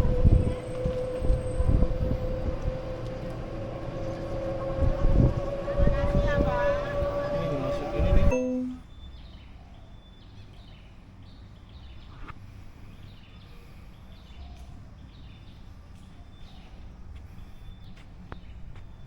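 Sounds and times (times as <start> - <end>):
low outdoor rumble: 0.0 - 8.9
small birds chirping: 8.4 - 19.0.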